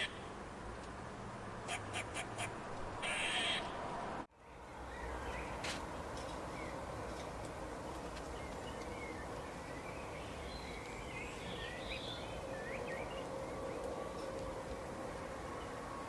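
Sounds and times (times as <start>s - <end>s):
small birds chirping: 8.2s - 13.9s.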